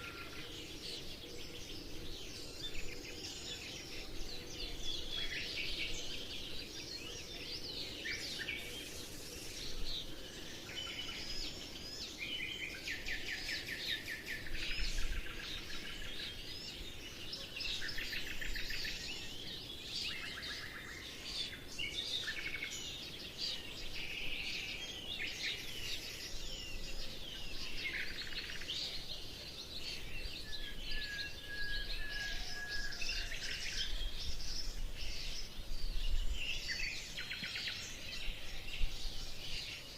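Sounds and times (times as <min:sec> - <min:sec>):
faint background hiss: 0:00.0 - 0:31.4
small birds chirping: 0:00.0 - 0:39.9.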